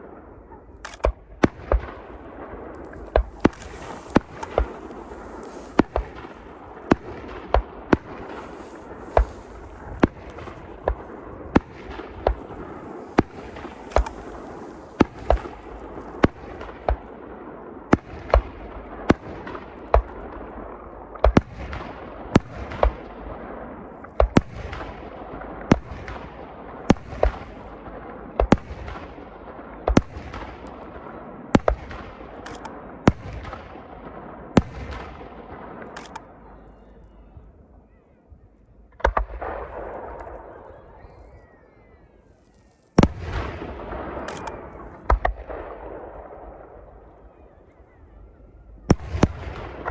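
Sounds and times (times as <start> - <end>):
fireworks bursting with bangs: 0.9 - 20.6
crackling hiss: 2.7 - 11.2, 11.8 - 16.8.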